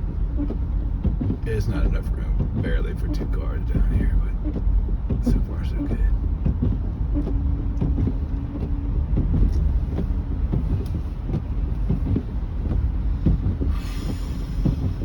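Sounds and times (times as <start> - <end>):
engine and tyres rumbling: 0.0 - 15.0.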